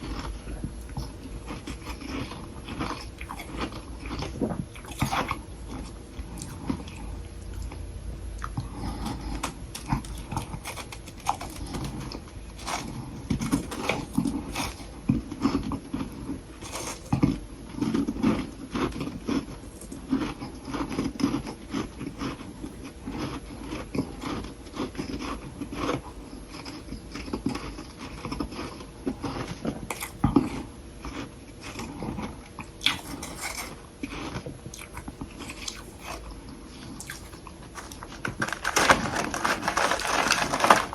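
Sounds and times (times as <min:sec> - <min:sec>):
crisp crunching of frost: 0:10.0 - 0:15.0, 0:37.0 - 0:40.9.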